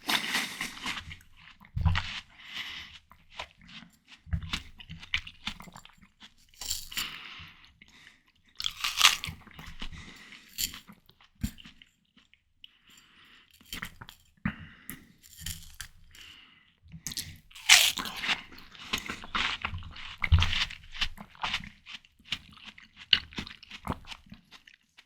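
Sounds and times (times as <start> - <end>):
biting and chewing watermelon: 0.0 - 2.8, 8.6 - 9.8, 17.1 - 24.9.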